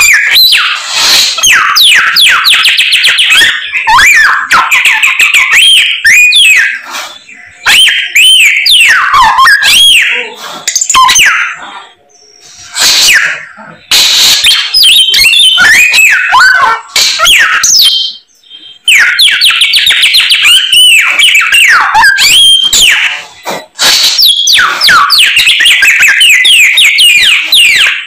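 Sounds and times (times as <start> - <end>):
songbird singing: 11.0 - 12.8.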